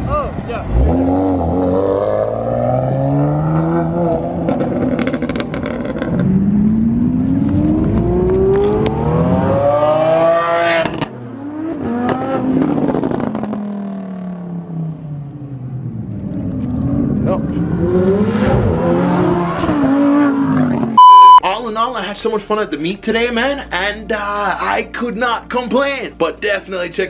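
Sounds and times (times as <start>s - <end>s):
car engine revving: 0.4s - 15.0s, 15.8s - 21.0s
exhaust crackles and pops: 4.5s - 9.0s.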